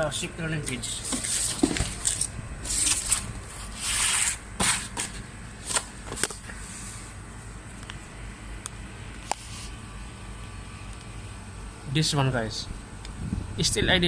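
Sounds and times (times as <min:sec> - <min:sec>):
rustling and scraping: 0:00.8 - 0:07.0.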